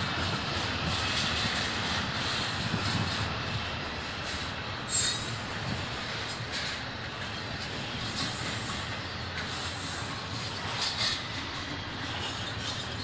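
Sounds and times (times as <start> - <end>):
train wheels on rails: 0.0 - 13.0
high hiss: 4.9 - 5.5.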